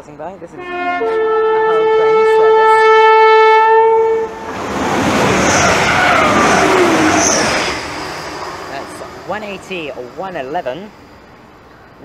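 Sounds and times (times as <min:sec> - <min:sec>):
train horn: 0:00.5 - 0:04.6
train rushing past: 0:00.5 - 0:12.0.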